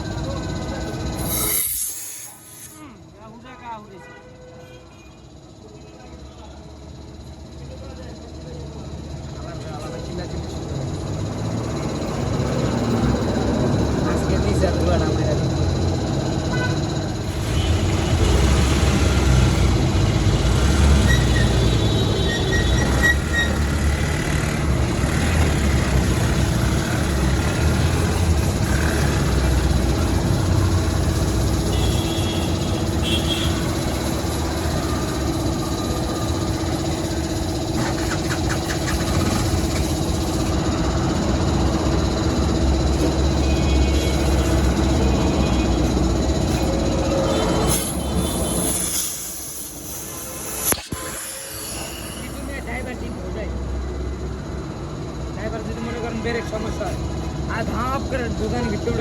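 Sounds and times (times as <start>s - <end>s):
engine rumbling: 17.0s - 59.0s.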